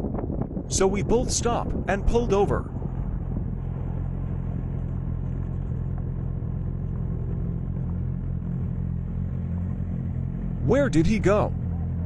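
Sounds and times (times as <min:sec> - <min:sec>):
motorcycle engine idling: 0:02.7 - 0:12.0.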